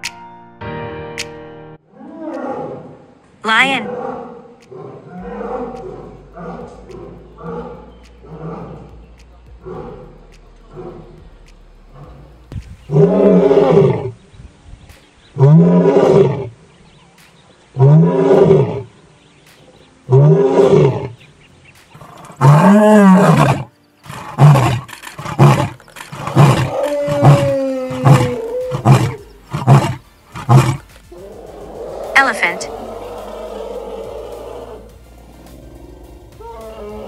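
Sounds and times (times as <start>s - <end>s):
lion grunting calls: 3.7s - 11.3s, 11.9s - 14.2s, 17.7s - 18.9s, 20.1s - 21.2s, 22.0s - 37.0s
lion roaring: 3.8s - 9.0s, 9.6s - 11.2s, 11.9s - 14.2s, 15.4s - 16.6s, 17.8s - 18.9s, 20.1s - 21.2s, 22.0s - 37.0s.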